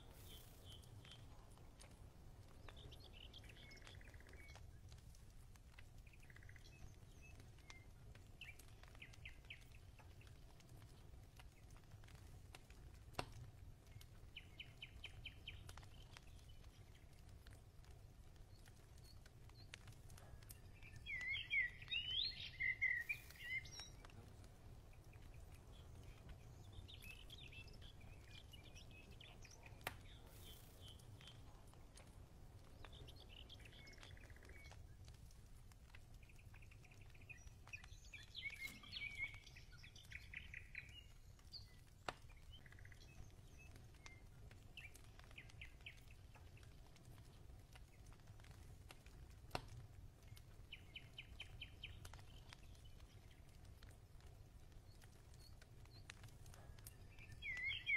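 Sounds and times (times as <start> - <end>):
faint clicks: 0.0 - 57.9
birds chirping and singing: 20.6 - 24.1, 36.5 - 46.6, 56.9 - 57.9.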